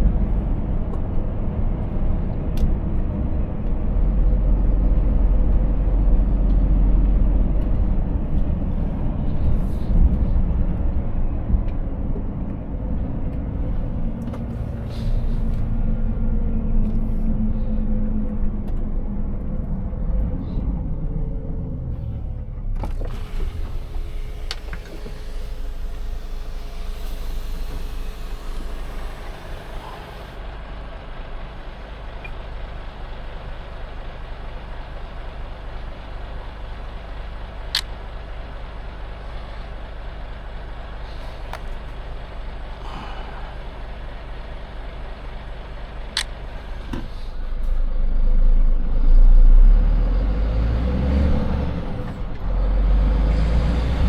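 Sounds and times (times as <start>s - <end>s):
truck engine rumble: 0.0s - 54.0s
sharp clicks: 37.7s - 38.1s.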